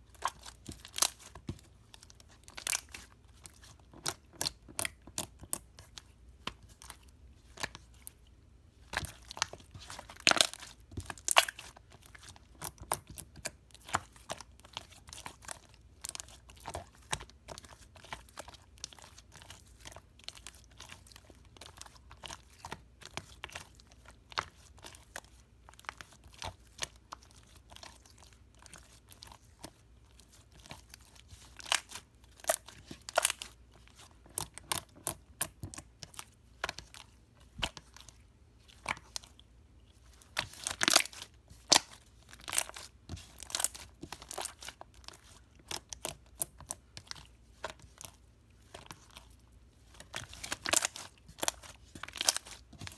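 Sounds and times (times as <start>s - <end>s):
slime crackling and popping: 9.0s - 15.5s, 49.9s - 52.9s.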